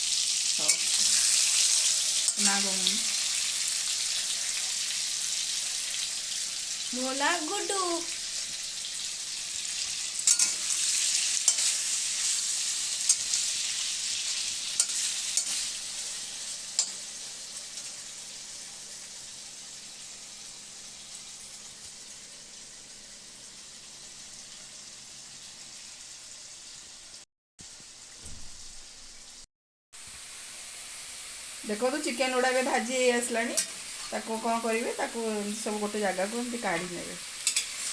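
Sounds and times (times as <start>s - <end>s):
chicken sizzling in hot oil: 0.0s - 37.9s.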